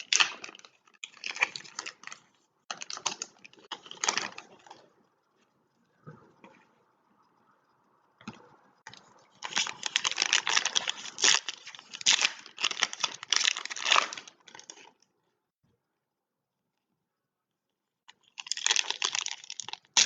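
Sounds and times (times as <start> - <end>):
foil wrapper crinkling and tearing: 0.0 - 4.9, 9.4 - 15.0, 18.2 - 20.0.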